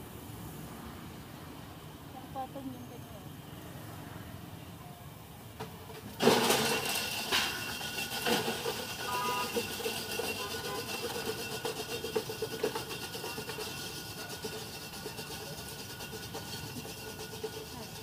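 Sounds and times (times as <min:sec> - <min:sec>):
oil sizzling in a wok: 0:06.2 - 0:18.0.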